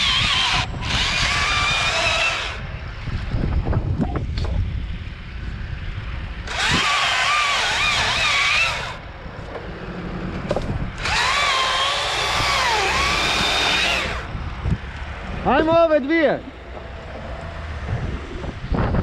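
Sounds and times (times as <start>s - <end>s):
chainsaw cutting wood: 0.0s - 2.6s, 6.4s - 9.0s, 10.5s - 14.3s
wind on microphone: 0.0s - 7.1s, 12.2s - 15.8s, 17.7s - 19.0s.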